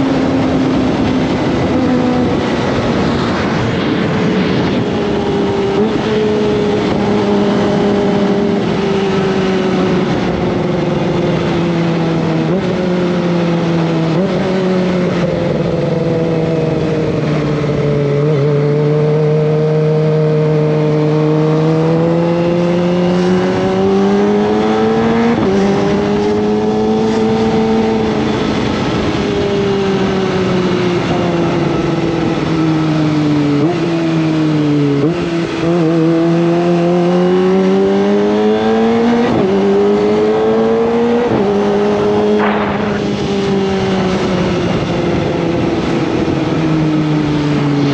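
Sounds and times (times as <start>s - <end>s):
motorcycle engine running: 39.5s - 47.9s.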